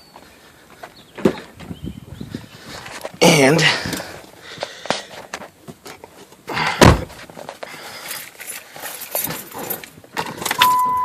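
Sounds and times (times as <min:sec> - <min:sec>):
car door thunk: 0:06.8 - 0:07.2
high electronic tone: 0:10.6 - 0:11.0.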